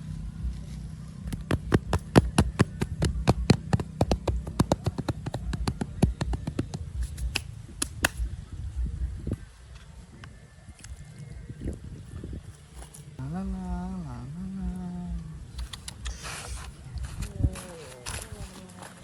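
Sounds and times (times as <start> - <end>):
low steady hum: 0.0 - 19.0
sharp taps: 1.3 - 8.3.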